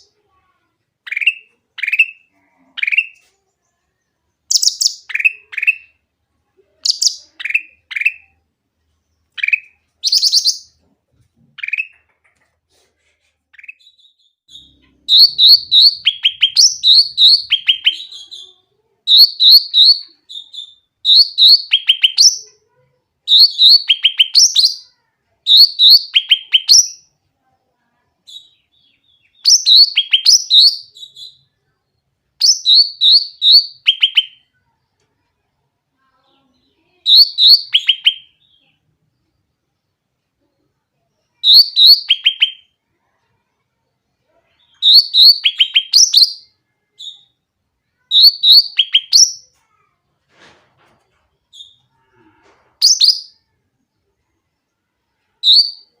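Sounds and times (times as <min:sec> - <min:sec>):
songbird singing: 0:01.0 - 0:06.0, 0:06.8 - 0:08.4, 0:09.0 - 0:10.8, 0:13.6 - 0:18.5, 0:19.1 - 0:22.5, 0:23.3 - 0:27.2, 0:28.3 - 0:31.5, 0:32.4 - 0:34.4, 0:36.6 - 0:38.8, 0:41.3 - 0:42.7, 0:44.5 - 0:47.4, 0:48.0 - 0:49.5, 0:52.8 - 0:53.4, 0:55.4 - 0:55.9.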